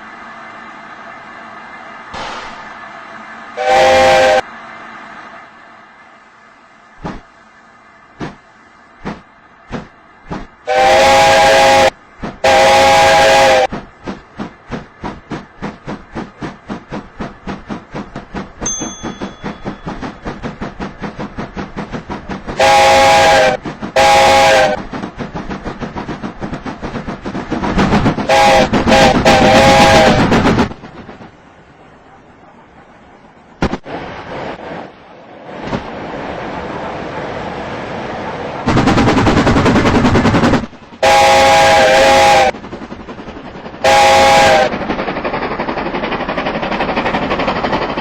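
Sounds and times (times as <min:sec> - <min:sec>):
steam locomotive chuffing: 0:00.0 - 0:05.6, 0:06.2 - 0:34.7, 0:38.6 - 0:48.0
steam whistle blasts: 0:03.6 - 0:04.5, 0:10.6 - 0:13.7, 0:22.6 - 0:24.8, 0:28.3 - 0:30.3, 0:41.0 - 0:42.5, 0:43.8 - 0:44.7.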